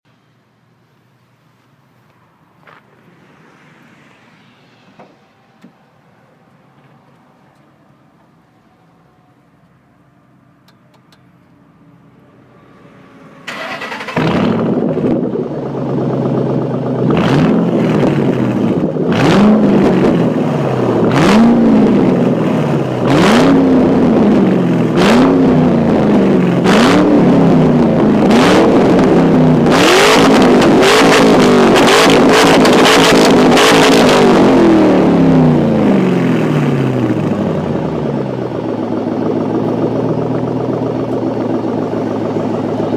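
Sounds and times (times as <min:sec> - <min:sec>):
car engine starting: 0:02.6 - 0:42.9
car engine revving: 0:11.9 - 0:42.9.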